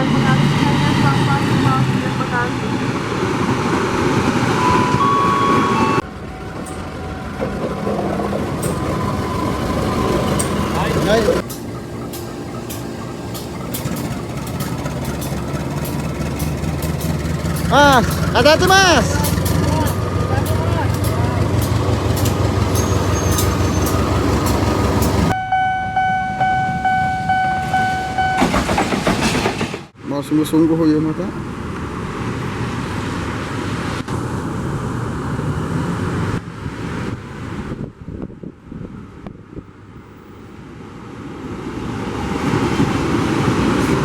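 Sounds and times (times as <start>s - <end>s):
rail and street background noise: 0.0s - 44.0s
train rumbling past: 0.0s - 44.0s
train clicks: 5.8s - 25.4s, 27.7s - 30.0s
high pulsing horn-like tone: 25.3s - 28.5s.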